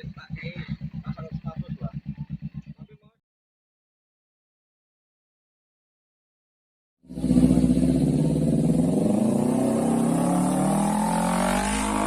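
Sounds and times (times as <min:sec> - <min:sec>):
motorcycle engine revving: 0:00.0 - 0:03.2, 0:07.0 - 0:12.0.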